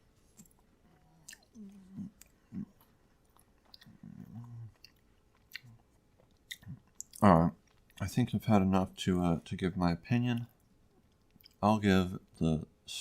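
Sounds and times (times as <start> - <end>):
person chewing food: 0.2 - 8.0, 10.4 - 11.6.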